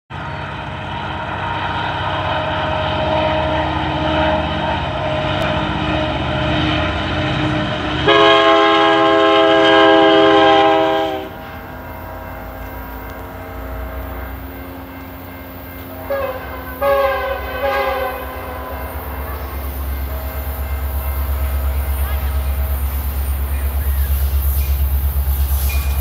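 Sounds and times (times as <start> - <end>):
diesel locomotive engine rumble: 0.1 - 26.0
rail noise: 0.1 - 26.0
locomotive horn chord: 2.1 - 22.8.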